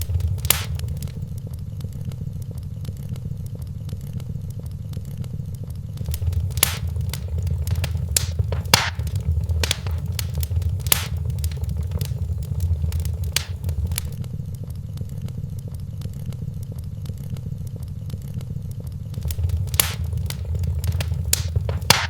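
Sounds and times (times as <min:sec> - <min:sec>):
sharp pops of fire: 0:00.0 - 0:01.3, 0:06.0 - 0:14.2, 0:19.2 - 0:22.0
wood fire crackling: 0:00.0 - 0:01.5, 0:06.0 - 0:14.2, 0:19.2 - 0:22.0
low steady rumble: 0:00.0 - 0:02.6, 0:05.1 - 0:15.5, 0:19.1 - 0:22.0.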